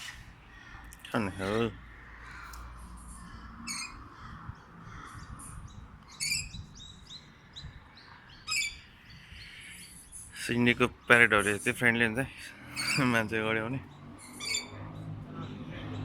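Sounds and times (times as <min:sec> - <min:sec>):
parrot chirps: 0:06.1 - 0:06.6, 0:08.5 - 0:10.2, 0:12.7 - 0:13.1, 0:14.2 - 0:14.9
harsh parrot squawks: 0:06.2 - 0:06.5, 0:14.2 - 0:14.8.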